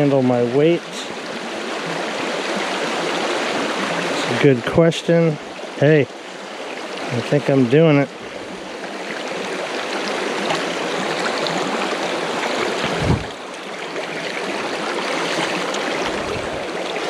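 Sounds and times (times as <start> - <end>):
creek water rushing: 0.0 - 17.0
low thump: 12.8 - 13.4.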